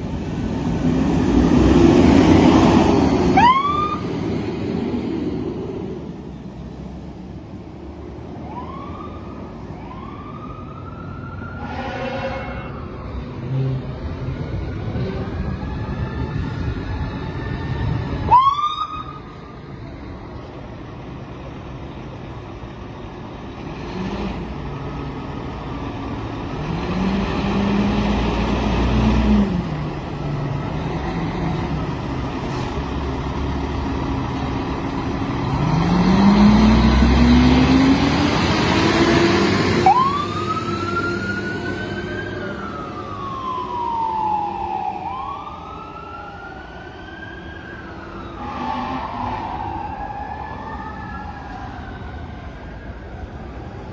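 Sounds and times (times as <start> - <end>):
trucks rumbling past: 0.0 - 53.9
siren wailing: 3.3 - 4.0, 8.4 - 13.1, 14.8 - 19.3, 39.8 - 53.9
siren chirping: 3.4 - 4.0, 39.8 - 52.4.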